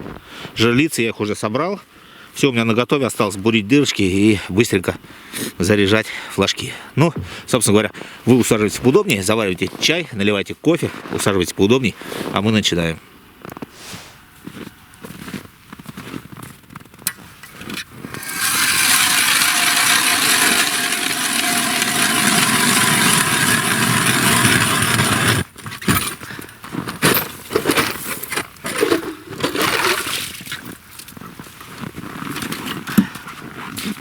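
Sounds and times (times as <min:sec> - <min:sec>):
ice auger drilling: 0:18.0 - 0:25.5, 0:28.7 - 0:30.3
scrapes and knocks: 0:18.1 - 0:26.2.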